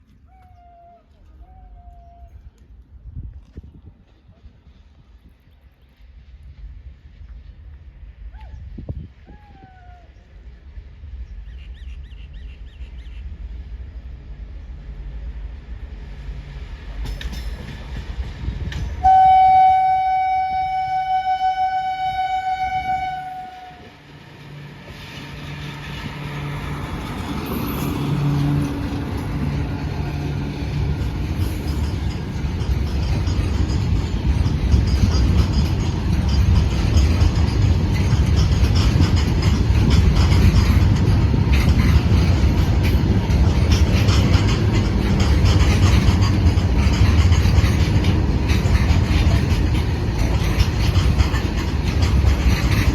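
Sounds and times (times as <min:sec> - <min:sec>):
train rumble: 0:00.0 - 0:52.9
train horn: 0:19.0 - 0:24.1.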